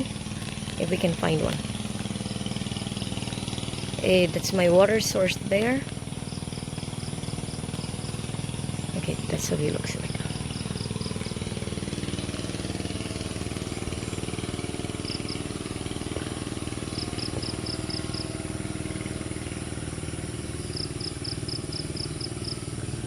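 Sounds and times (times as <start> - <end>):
small engine running: 0.0 - 23.0
high insect-like hiss: 5.9 - 9.4, 10.1 - 22.9.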